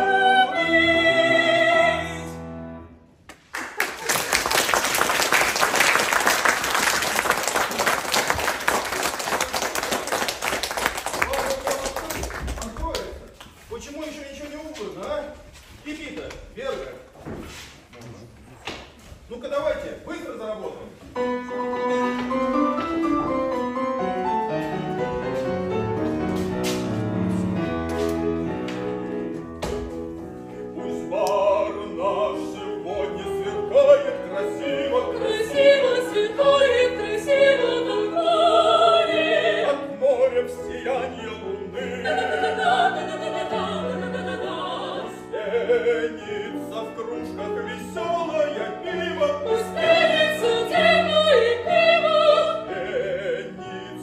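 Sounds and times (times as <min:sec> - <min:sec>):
piano playing: 0:00.0 - 0:03.2, 0:21.1 - 0:54.0
audience applause: 0:03.4 - 0:13.1.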